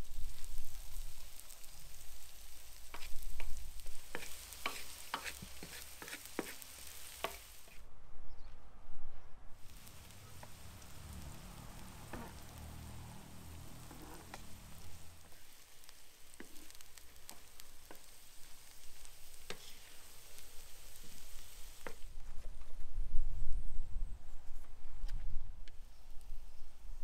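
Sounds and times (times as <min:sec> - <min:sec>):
vegetables sizzling in a pan: 0:00.0 - 0:07.8, 0:09.6 - 0:22.2.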